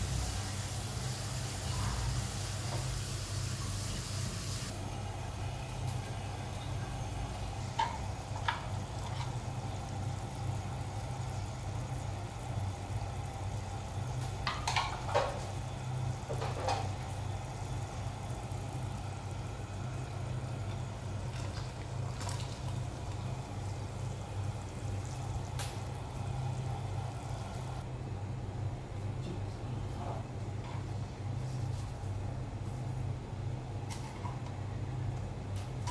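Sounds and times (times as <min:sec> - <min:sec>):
gas stove humming: 0:00.0 - 0:35.9.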